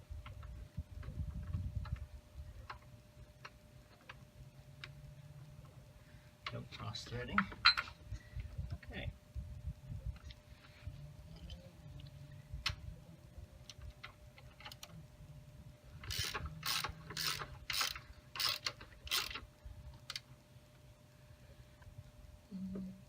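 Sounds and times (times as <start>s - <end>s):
ratchet wrench clicking: 16.0s - 19.4s.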